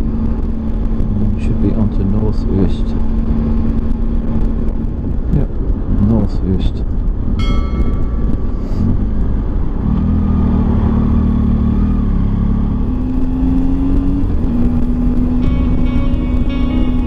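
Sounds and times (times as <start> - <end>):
wind and road noise: 0.0 - 17.0
motorcycle engine running: 7.6 - 17.0.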